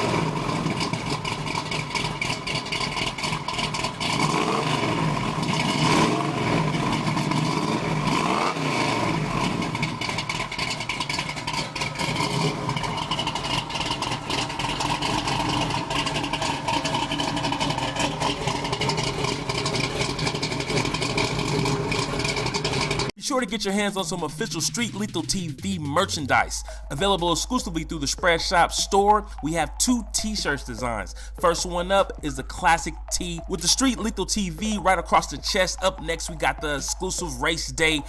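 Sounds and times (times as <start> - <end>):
car engine revving: 0.0 - 23.1.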